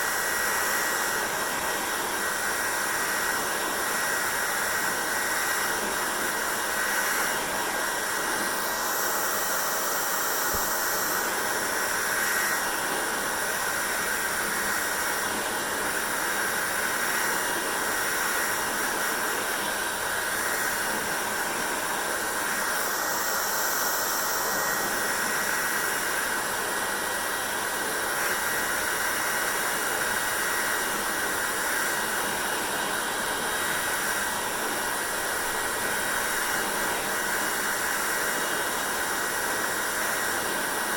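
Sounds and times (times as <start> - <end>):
hair dryer blowing: 0.0 - 40.9.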